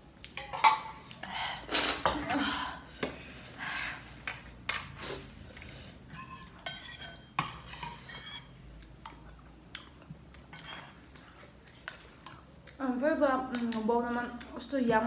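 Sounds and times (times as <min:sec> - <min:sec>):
cutlery scraping plates: 0:00.4 - 0:01.1, 0:02.0 - 0:02.5, 0:06.1 - 0:09.2.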